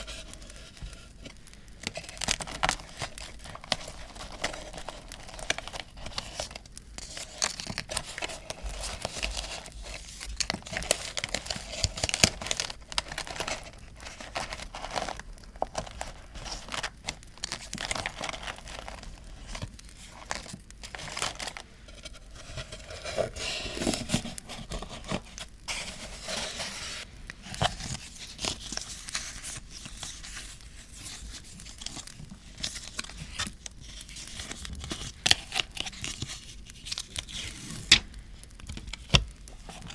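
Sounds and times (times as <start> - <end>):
paper crinkling and rustling: 0.0 - 39.9
small crackles and taps: 37.9 - 39.9.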